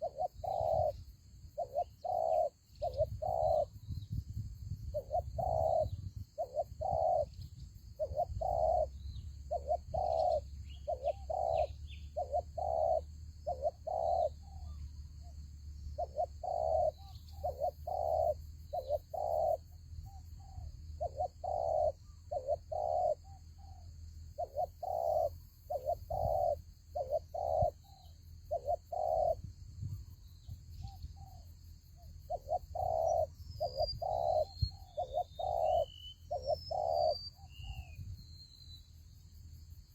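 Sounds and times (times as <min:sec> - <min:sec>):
doves cooing: 0:00.0 - 0:03.9, 0:04.9 - 0:14.9, 0:16.0 - 0:23.8, 0:24.4 - 0:29.5, 0:32.3 - 0:38.0.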